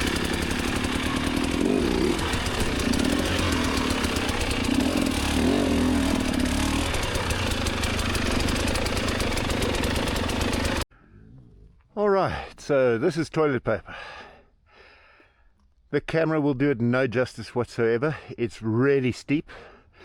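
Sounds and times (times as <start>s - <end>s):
dirt bike engine running: 0.0s - 10.8s.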